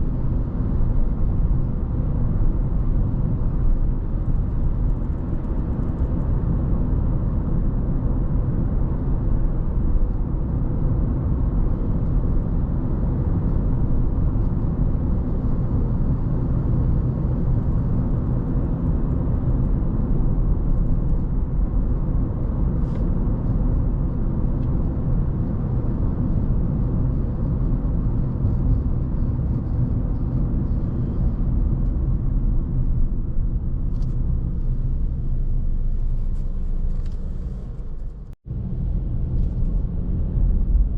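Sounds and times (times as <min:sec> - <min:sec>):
car tyre and road noise: 0:00.0 - 0:40.9.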